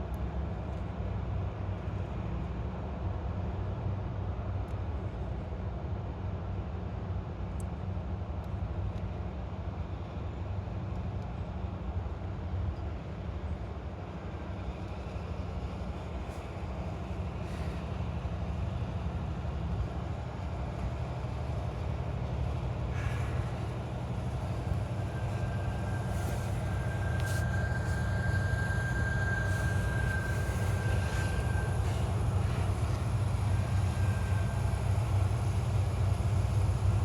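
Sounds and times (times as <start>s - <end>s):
train rumbling past: 9.3s - 37.0s
thin high steady tone: 20.2s - 37.0s.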